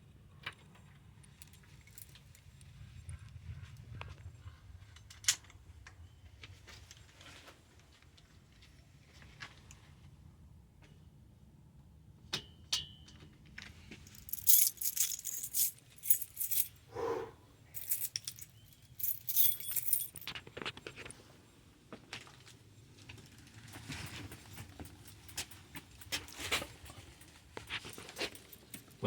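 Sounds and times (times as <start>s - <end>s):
light metallic jingling and clicking: 0.5s - 2.7s, 13.6s - 21.2s, 22.2s - 29.0s.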